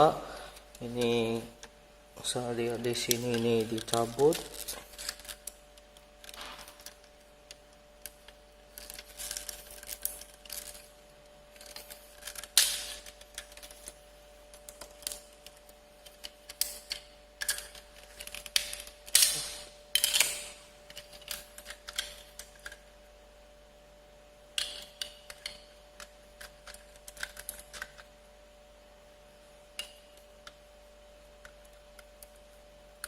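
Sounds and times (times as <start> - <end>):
plastic parts clicking and snapping: 11.6 - 22.8, 24.6 - 28.1.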